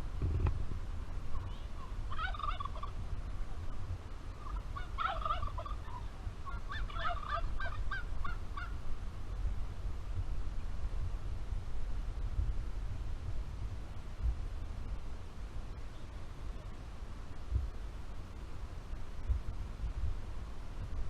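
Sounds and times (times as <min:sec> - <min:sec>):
turkey gobbling: 0:01.3 - 0:03.0, 0:04.4 - 0:08.7.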